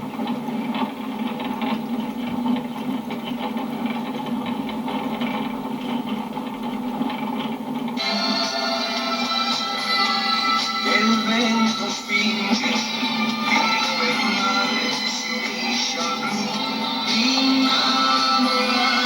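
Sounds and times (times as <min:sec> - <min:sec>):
music: 0:07.9 - 0:19.0.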